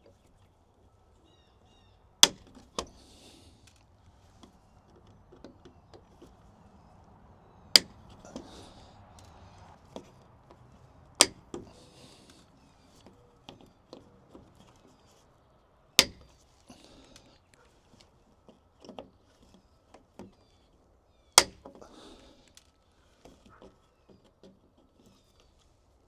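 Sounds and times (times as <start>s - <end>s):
wire cutters snapping: 2.2s - 3.0s, 7.8s - 9.3s, 11.2s - 11.7s, 16.0s - 16.3s, 21.4s - 21.8s
small handling clicks: 7.8s - 8.6s, 11.2s - 11.7s, 16.0s - 16.3s.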